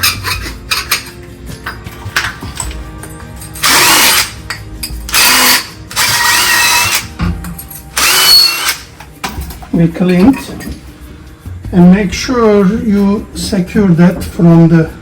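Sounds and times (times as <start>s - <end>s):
metal pipe scraping with squeal: 0.0s - 1.2s.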